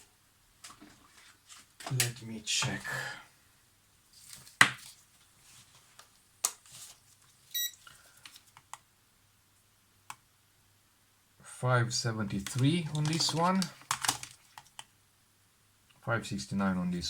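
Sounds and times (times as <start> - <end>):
short electronic beep: 7.6 - 7.8
handling clicks and knocks: 12.5 - 14.8.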